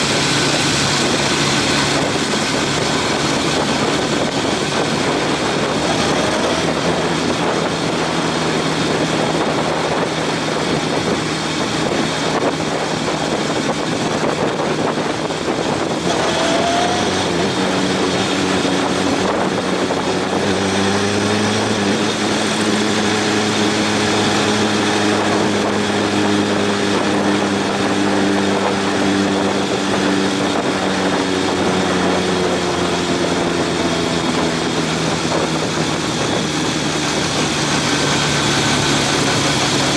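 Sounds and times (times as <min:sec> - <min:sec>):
motorcycle engine running: 0:00.0 - 0:39.9
wind noise: 0:00.0 - 0:39.9.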